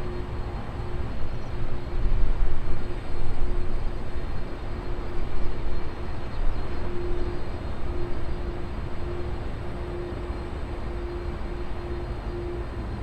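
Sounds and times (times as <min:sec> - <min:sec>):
jet engine rumble: 0:00.0 - 0:13.0
faint tone: 0:06.9 - 0:13.0.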